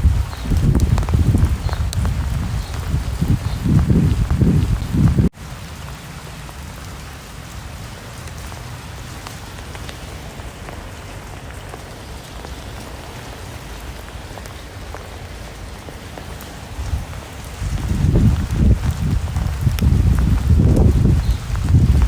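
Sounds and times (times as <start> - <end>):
rain on a hard surface: 0.0 - 22.0.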